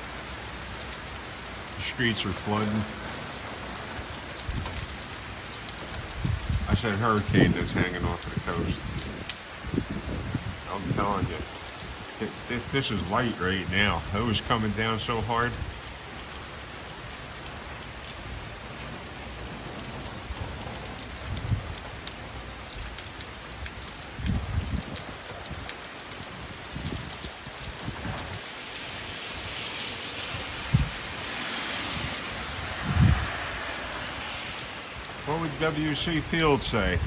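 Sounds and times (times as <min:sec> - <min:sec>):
steady rain hissing: 0:00.0 - 0:37.0.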